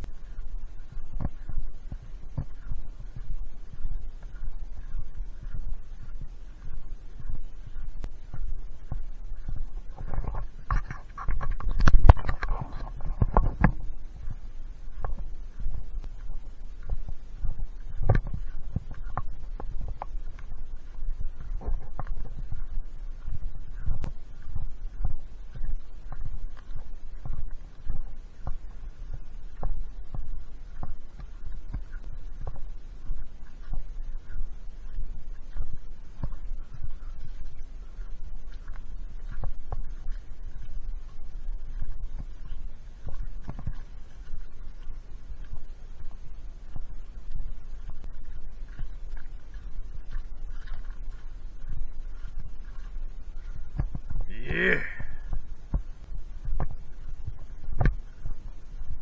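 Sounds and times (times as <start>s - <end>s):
brush rustling against camera: 0.0s - 29.8s
footsteps on trail: 0.0s - 59.0s
low rumble: 0.0s - 59.0s.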